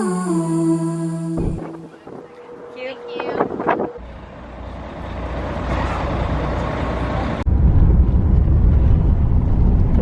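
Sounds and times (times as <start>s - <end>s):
heavy low rumble: 0.0s - 2.2s, 7.5s - 10.0s
vehicle road noise: 1.6s - 10.0s.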